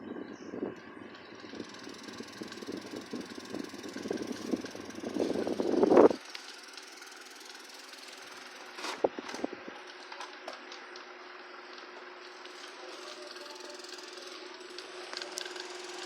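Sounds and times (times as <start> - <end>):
fan motor hum: 0.0 - 16.0.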